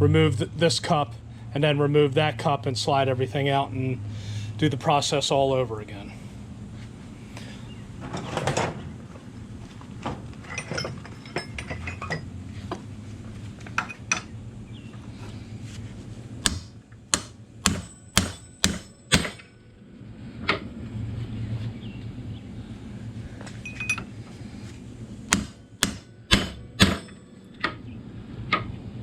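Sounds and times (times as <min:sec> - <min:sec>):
metal parts clinking: 0:10.4 - 0:12.3, 0:13.8 - 0:14.3
hammer striking metal: 0:16.4 - 0:19.7, 0:25.3 - 0:27.8.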